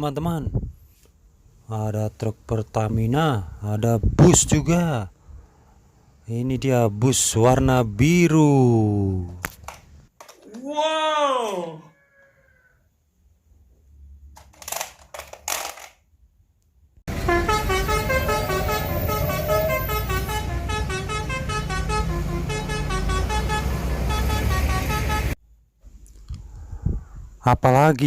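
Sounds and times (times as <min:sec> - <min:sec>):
handling clicks: 0:14.4 - 0:16.0.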